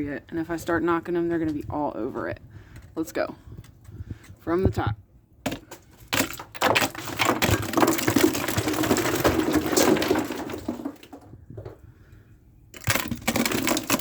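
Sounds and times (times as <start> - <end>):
ice cracking and shattering: 5.5 - 11.2, 12.8 - 14.0.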